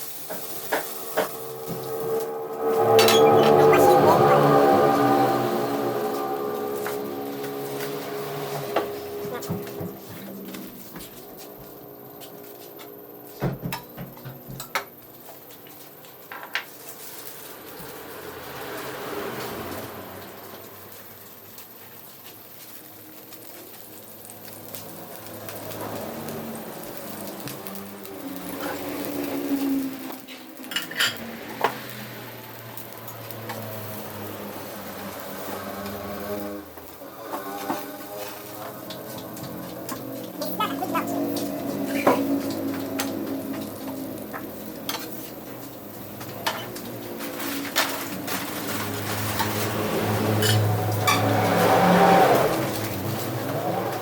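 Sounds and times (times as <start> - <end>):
utensil scraping frying pan: 0.0 - 10.8, 25.5 - 32.2, 33.4 - 54.0.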